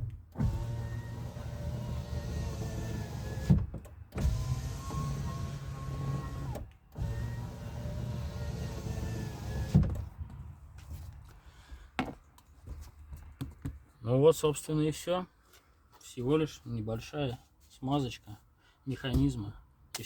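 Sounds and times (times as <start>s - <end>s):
electric window motor humming: 0.4s - 9.9s.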